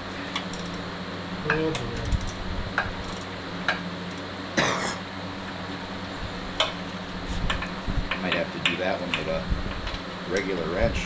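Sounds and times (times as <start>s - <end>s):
steady hum: 0.0s - 11.0s
short cough-like burst: 4.6s - 5.0s.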